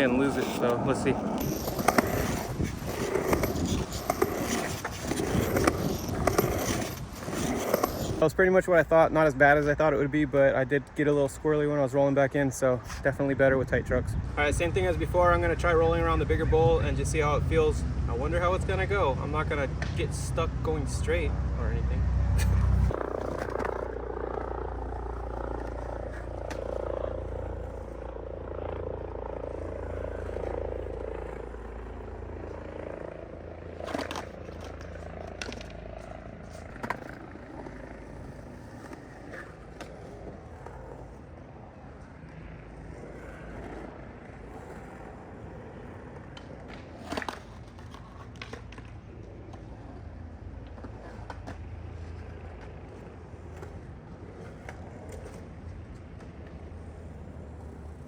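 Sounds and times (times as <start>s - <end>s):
skateboard clacks: 0.0s - 8.2s, 22.9s - 27.8s, 33.8s - 35.8s, 42.3s - 58.0s
skateboard wheels rumbling: 0.0s - 58.0s.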